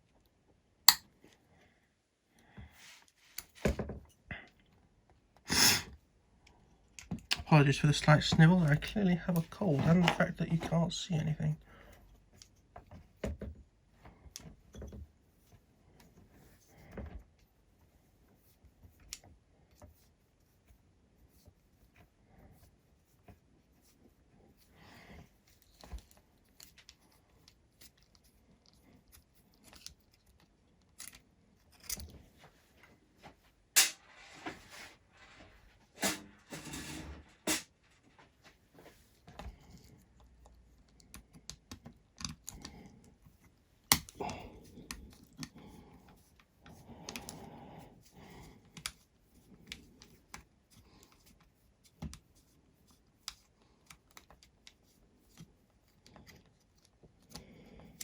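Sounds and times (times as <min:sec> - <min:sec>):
small tools clicking and rustling: 0:29.0 - 0:32.2.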